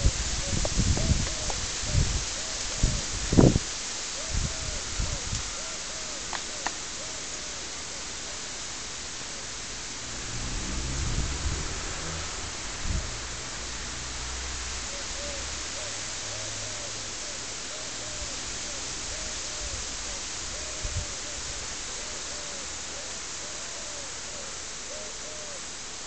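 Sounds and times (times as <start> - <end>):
steady hiss: 0.0 - 26.0
bird hooting: 4.2 - 8.4, 14.9 - 25.7.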